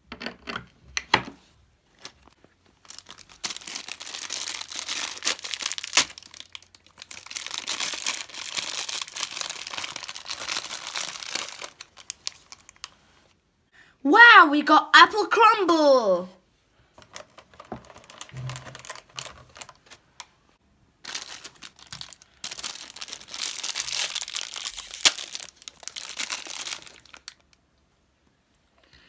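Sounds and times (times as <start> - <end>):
wrapper crinkling and tearing: 2.0 - 13.1, 17.0 - 20.0, 21.0 - 27.5.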